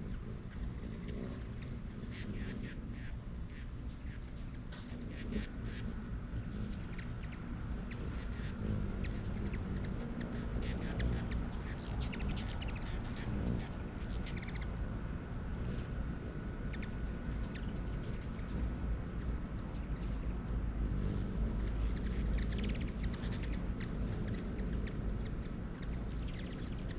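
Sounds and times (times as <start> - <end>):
insect chirping in fast pulses: 0.0 - 5.5, 10.2 - 13.2, 20.0 - 26.9.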